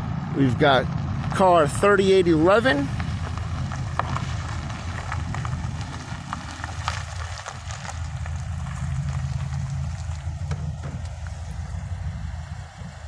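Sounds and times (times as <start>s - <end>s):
vehicle engine humming: 0.0s - 13.0s
light crackles and ticks: 2.5s - 11.8s.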